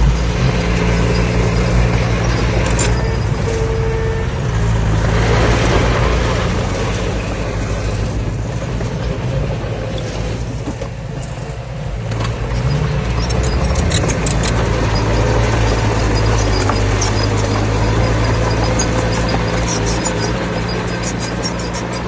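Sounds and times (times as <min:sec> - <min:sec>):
diesel engine of earthmoving machine: 0:00.0 - 0:22.0.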